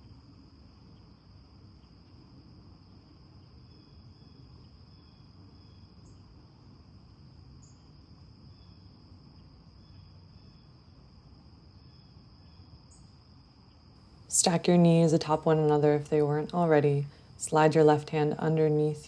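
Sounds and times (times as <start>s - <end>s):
crickets chirring: 0.0s - 19.0s
low background hum: 14.3s - 19.0s.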